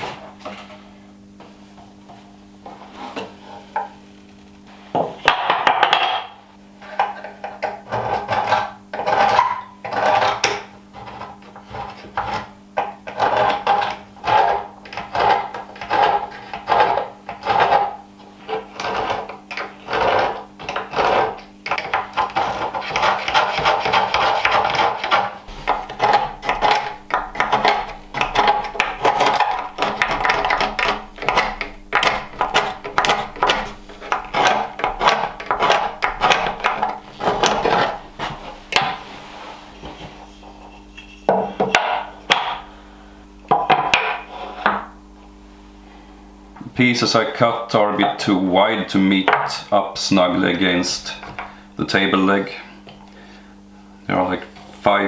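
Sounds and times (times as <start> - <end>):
faint steady hum: 0.0 - 55.0
hand tool strokes on wood: 22.2 - 41.3.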